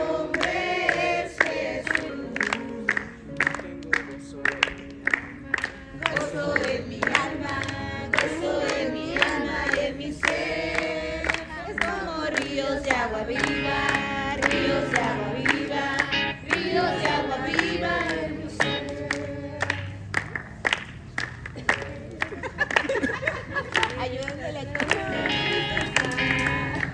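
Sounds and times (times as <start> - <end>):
group singing a worship song: 0.0 - 20.2.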